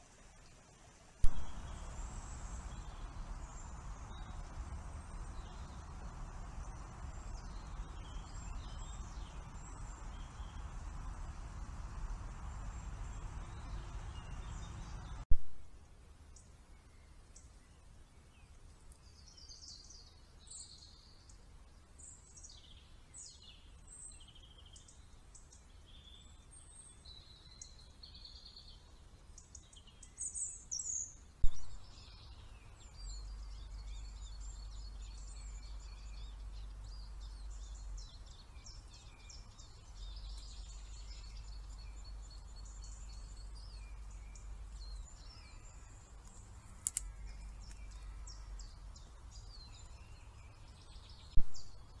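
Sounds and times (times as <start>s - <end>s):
steady low hum: 1.2s - 15.2s
birds chirping and whistling: 1.3s - 15.2s, 29.9s - 51.9s
loud clicks: 46.2s - 47.9s.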